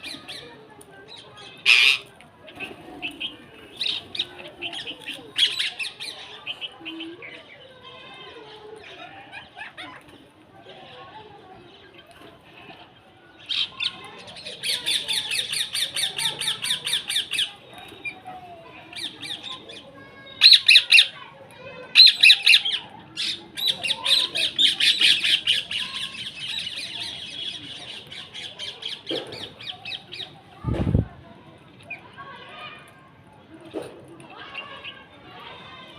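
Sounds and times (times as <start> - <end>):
birds squawking: 1.6 - 2.1.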